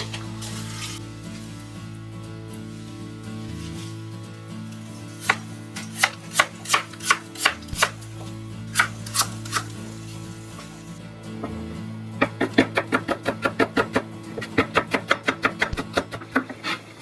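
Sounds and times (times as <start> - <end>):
knife chopping on cutting board: 5.3 - 8.0.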